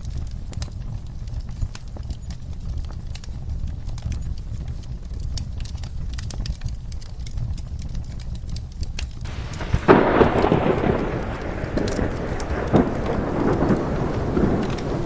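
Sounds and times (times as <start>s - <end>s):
wood fire crackling: 0.0s - 15.0s
thunder rolling: 9.3s - 15.0s.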